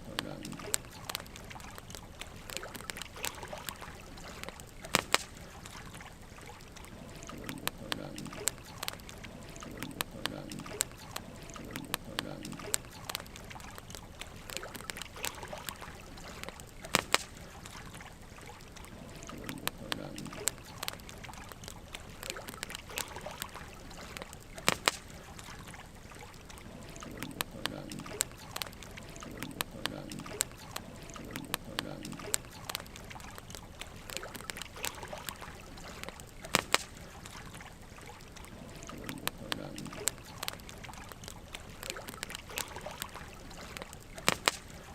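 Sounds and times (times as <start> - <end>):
fire crackling and popping: 0.0 - 44.9
low steady fire hiss: 0.0 - 44.9
rush of burning logs: 0.0 - 44.9
sharp fire pops: 4.4 - 5.5, 16.3 - 17.5, 24.1 - 25.4, 36.0 - 37.1, 43.7 - 44.8.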